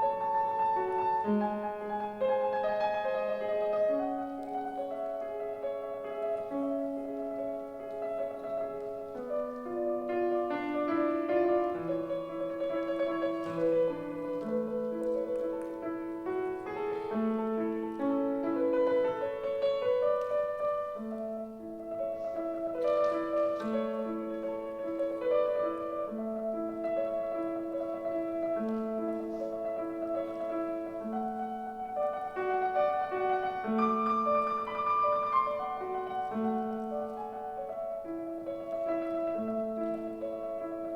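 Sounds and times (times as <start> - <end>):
solo piano piece: 0.0 - 40.9.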